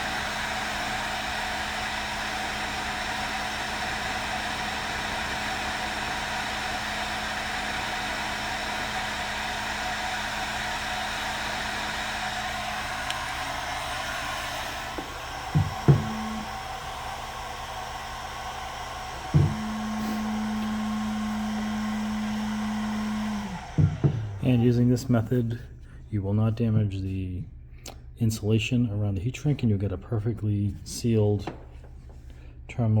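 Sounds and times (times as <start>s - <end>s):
heat gun blowing air: 0.0s - 25.4s
short knocks: 19.4s - 19.8s, 23.7s - 24.4s.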